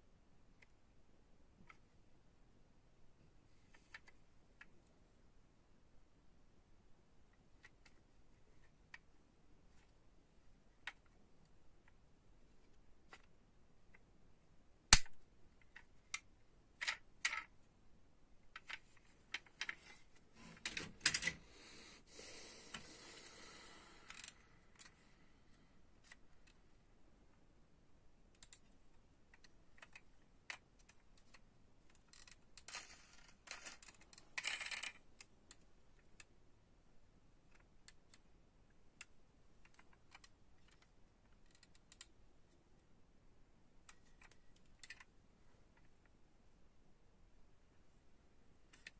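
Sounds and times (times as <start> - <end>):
toy cars clicking and tapping: 29.3 - 35.0.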